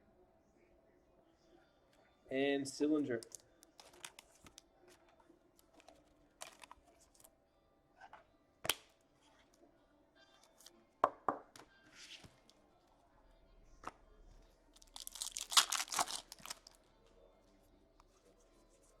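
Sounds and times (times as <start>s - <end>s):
foil pack tearing: 15.0s - 16.8s.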